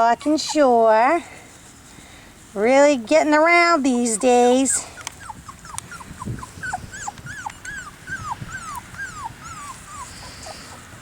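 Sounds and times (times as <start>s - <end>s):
puppy whimpering: 0.2s - 0.8s, 3.6s - 11.0s.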